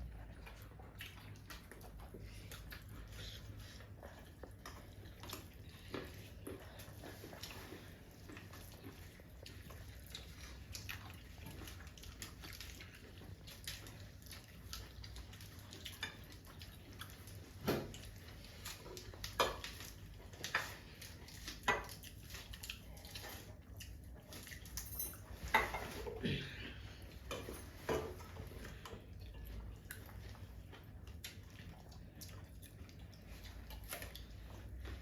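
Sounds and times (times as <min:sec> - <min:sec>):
low steady hum: 0:00.0 - 0:35.0
cutlery and dishes clinking: 0:24.8 - 0:26.0.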